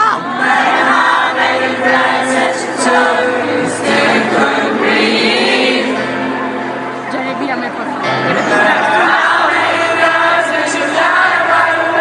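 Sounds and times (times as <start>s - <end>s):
crowd singing along: 0.0s - 12.0s
singer performing a melody: 0.0s - 12.0s
rock band playing live: 5.8s - 12.0s.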